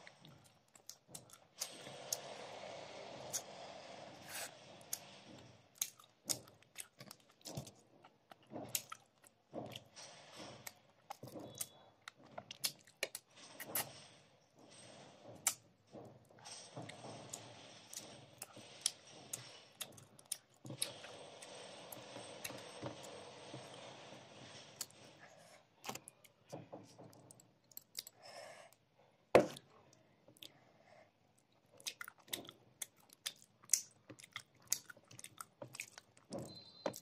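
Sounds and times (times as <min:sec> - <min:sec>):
close chewing with wet smacks: 0:00.0 - 0:01.7, 0:05.7 - 0:09.8, 0:10.6 - 0:13.2, 0:31.4 - 0:37.0.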